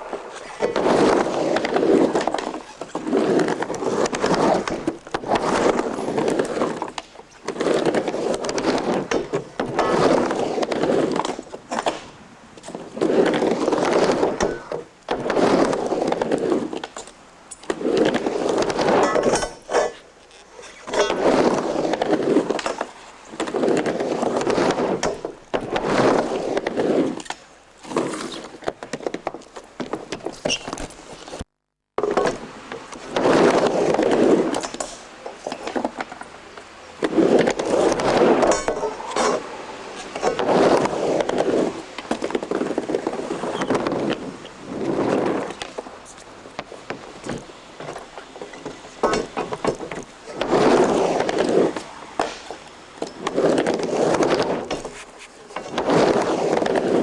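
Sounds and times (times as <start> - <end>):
skateboard knocks and clacks: 0.0 - 20.1, 32.0 - 57.0
skateboard wheels rumbling on ramp: 0.0 - 57.0.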